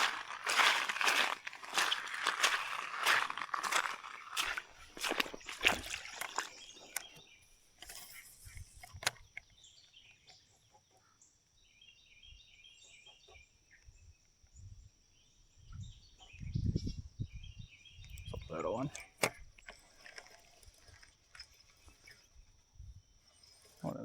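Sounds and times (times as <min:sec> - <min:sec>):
rustling: 0:00.0 - 0:07.0
bird chirping: 0:00.0 - 0:24.0.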